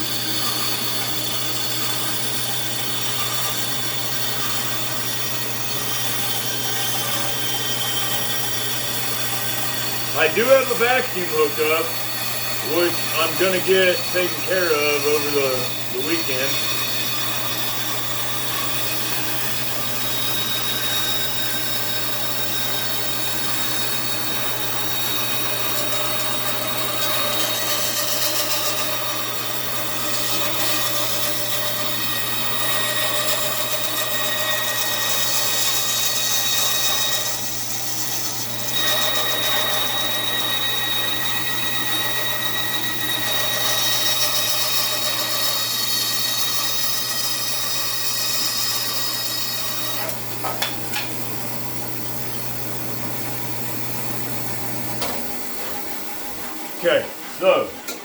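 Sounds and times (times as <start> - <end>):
bandsaw motor hum: 0.0 - 58.0
bandsaw blade cutting wood: 10.1 - 21.6, 24.8 - 51.2.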